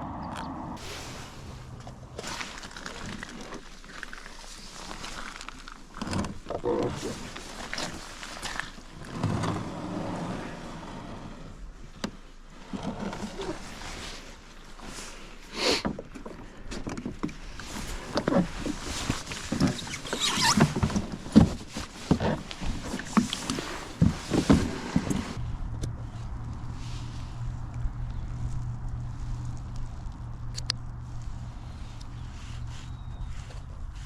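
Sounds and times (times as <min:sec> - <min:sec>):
water splashing: 0:00.8 - 0:05.5.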